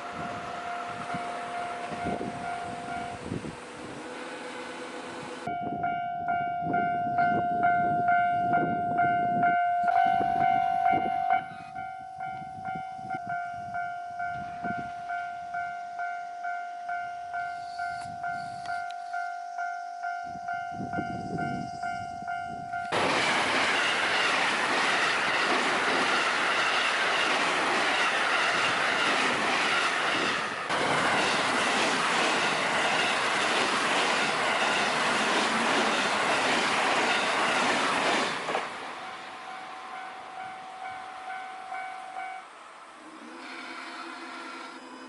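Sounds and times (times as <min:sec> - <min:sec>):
level crossing warning bell: 0:00.0 - 0:03.3, 0:05.4 - 0:23.0, 0:39.1 - 0:42.6
electric train passing: 0:00.0 - 0:45.0
wheels clattering on rails: 0:22.9 - 0:42.3.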